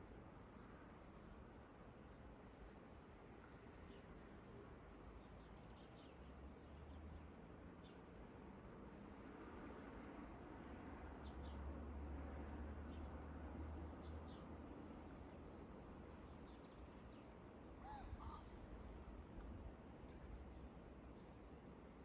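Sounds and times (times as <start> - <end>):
crickets trilling: 0.0 - 22.0
faint bird chirps: 16.1 - 18.7.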